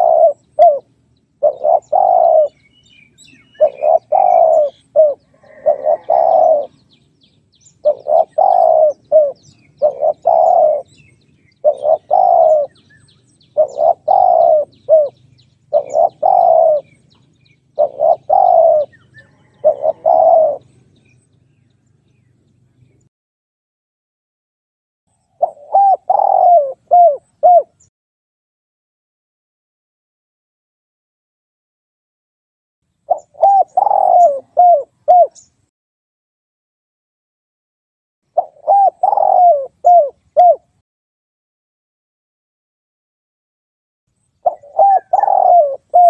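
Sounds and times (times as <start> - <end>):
dove cooing: 0.0 - 7.0, 7.7 - 20.9, 25.4 - 27.9, 33.1 - 35.5, 38.4 - 40.8, 44.4 - 46.0.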